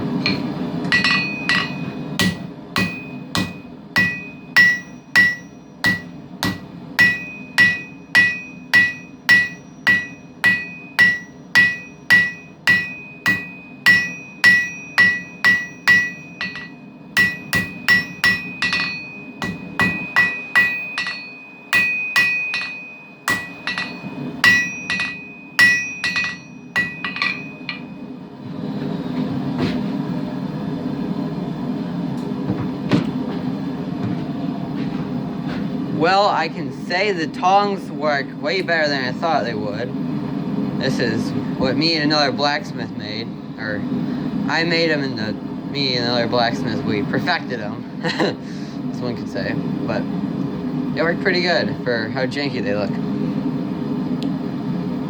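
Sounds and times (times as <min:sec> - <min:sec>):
hammer striking steel on anvil: 0:00.2 - 0:28.1.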